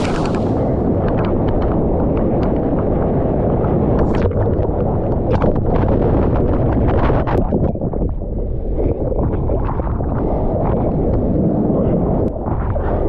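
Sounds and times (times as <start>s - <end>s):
water splashing and sloshing: 0.0s - 1.0s
wind buffeting microphone: 0.0s - 13.0s.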